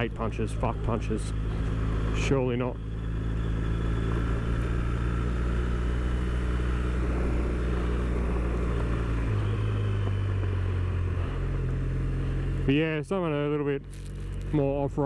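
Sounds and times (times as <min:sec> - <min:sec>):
motorcycle engine running: 0:00.0 - 0:15.0
tyre noise on gravel: 0:13.8 - 0:14.6.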